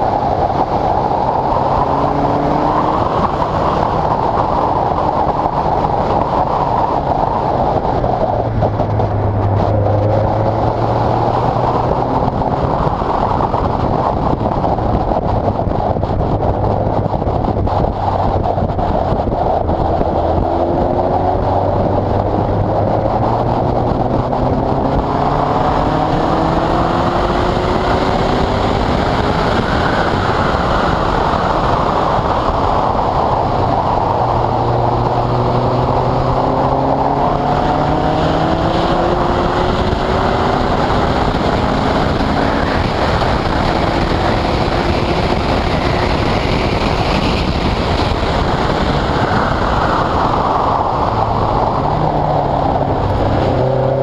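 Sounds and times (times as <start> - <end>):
sports car engine accelerating: 0.0 - 54.0
wind and road noise: 0.0 - 54.0.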